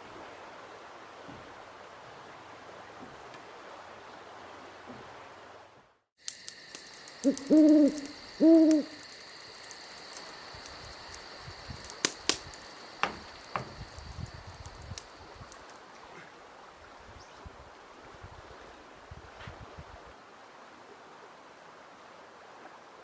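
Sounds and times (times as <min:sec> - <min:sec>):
faint ticking: 0:06.2 - 0:16.0
owl hooting: 0:06.4 - 0:10.2.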